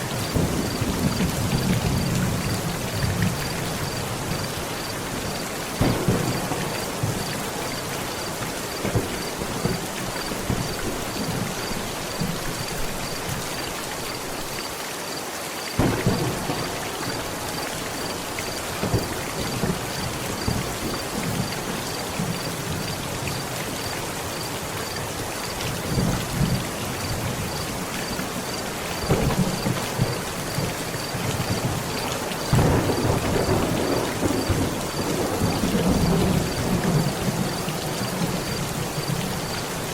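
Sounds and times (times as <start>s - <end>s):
heavy rain on a tent: 0.0s - 39.9s
thunder rumbling: 0.3s - 4.5s, 5.1s - 13.2s, 15.8s - 22.8s, 25.8s - 39.9s
thunder clap: 5.8s - 7.6s, 8.2s - 12.4s, 15.8s - 17.6s, 18.8s - 22.4s, 28.9s - 39.2s.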